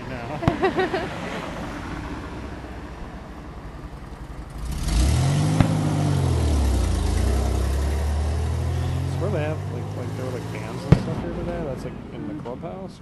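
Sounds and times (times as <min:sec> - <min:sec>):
car engine starting and idling: 0:00.0 - 0:12.8
sharp pop: 0:00.4 - 0:00.7, 0:05.5 - 0:06.0, 0:10.8 - 0:11.4.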